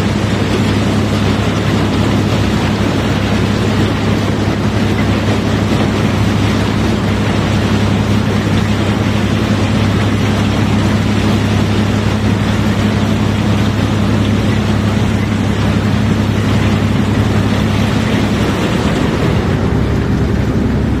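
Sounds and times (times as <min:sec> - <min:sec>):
constant rushing noise: 0:00.0 - 0:21.0
large engine droning: 0:00.0 - 0:21.0.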